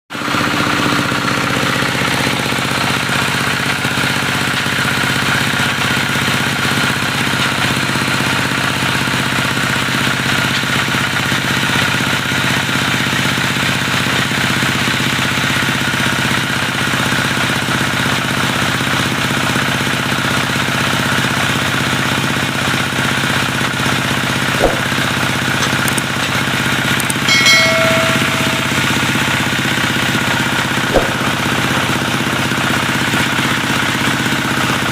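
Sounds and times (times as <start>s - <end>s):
diesel engine running: 0.1s - 34.9s
clicks: 27.0s - 29.2s.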